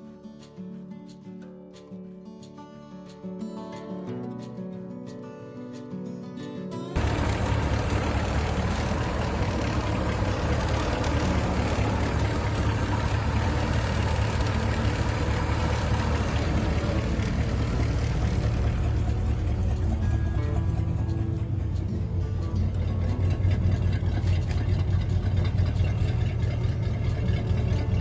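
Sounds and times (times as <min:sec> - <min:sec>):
car engine idling: 0:07.0 - 0:28.0.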